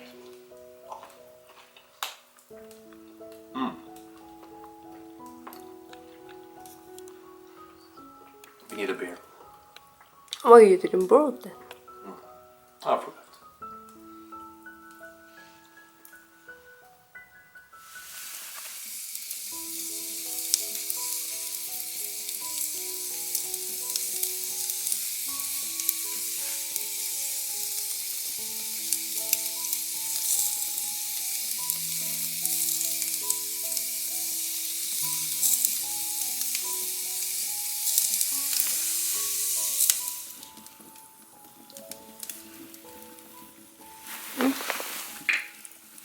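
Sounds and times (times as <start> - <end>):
soft background music: 0.0 - 46.0
food sizzling in a hot pan: 17.7 - 46.0.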